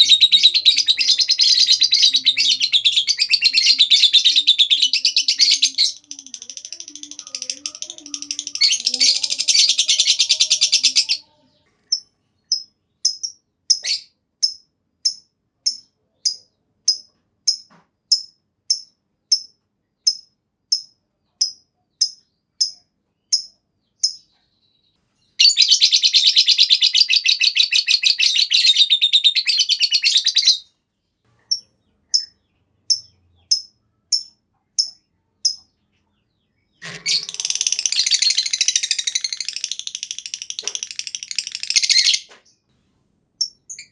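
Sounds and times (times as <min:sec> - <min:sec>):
high bird chirps: 0:00.0 - 0:30.7, 0:31.4 - 0:42.7, 0:43.4 - 0:43.9
lovebird rattling trill: 0:36.8 - 0:42.2.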